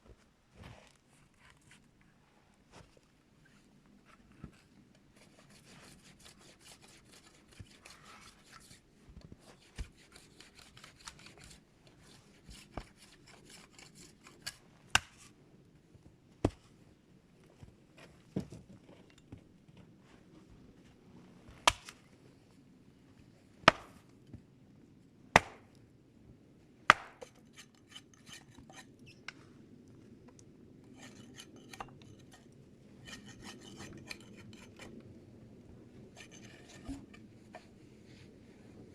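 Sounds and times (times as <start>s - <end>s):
wood rasping scrapes: 5.4s - 8.8s, 9.9s - 14.6s, 27.2s - 28.9s, 31.0s - 32.4s, 33.0s - 35.0s, 36.2s - 37.2s
blade chopping wood: 21.7s - 21.9s, 25.4s - 25.6s, 26.9s - 27.3s.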